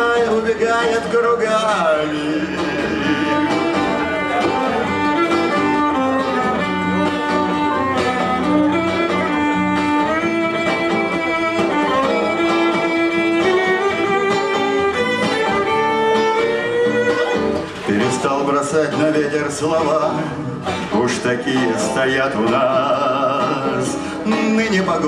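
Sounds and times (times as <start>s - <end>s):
guitar accompaniment: 0.0s - 25.0s
violin melody: 2.4s - 17.9s.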